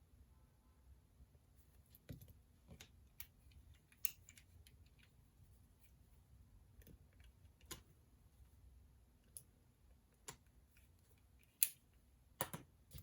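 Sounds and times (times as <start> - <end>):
faint room hush: 0.0 - 13.0
small clicks and taps of desk work: 6.7 - 7.9, 10.1 - 11.8, 12.4 - 13.0.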